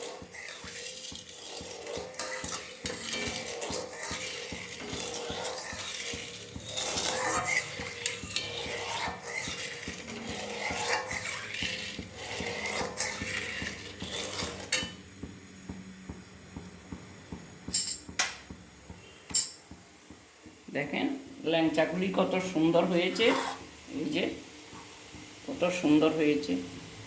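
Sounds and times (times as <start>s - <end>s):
metal spoon scraping in a pot: 0.0s - 15.1s, 21.8s - 26.1s
boiling syrup: 0.0s - 27.0s.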